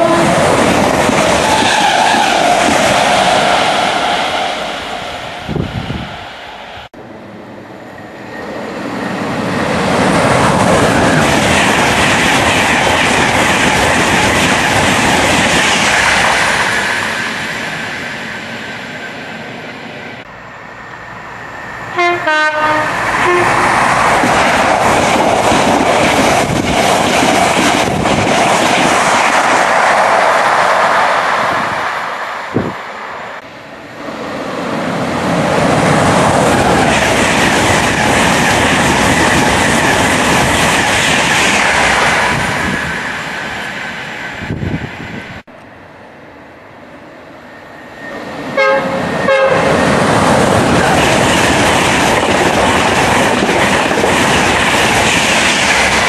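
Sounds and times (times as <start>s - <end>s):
two-tone train horn: 0.0s - 0.5s, 21.9s - 23.8s, 48.6s - 49.9s
trains rushing through station: 0.0s - 56.0s.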